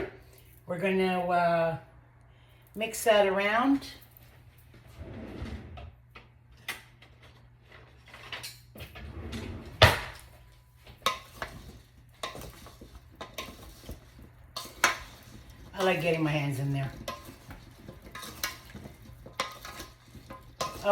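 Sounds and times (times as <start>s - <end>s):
vegetables rustling in a bowl: 10.7s - 20.9s.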